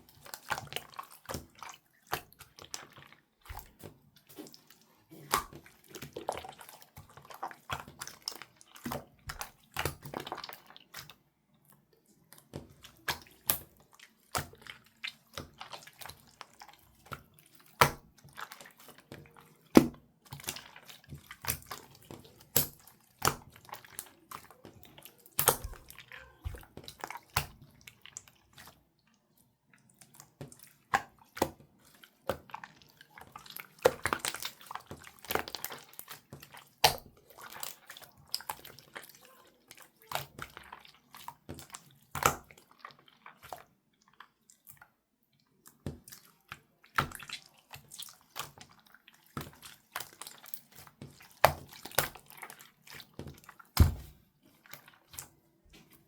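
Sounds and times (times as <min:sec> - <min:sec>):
slime squeezed with wet clicks: 0:21.4 - 0:28.7.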